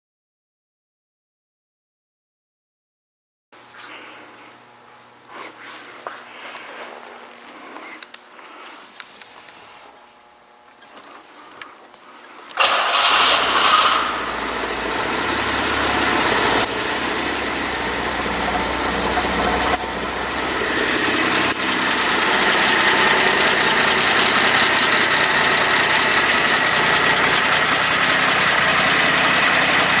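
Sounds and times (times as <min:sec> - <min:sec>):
car engine starting and idling: 0:12.6 - 0:30.0.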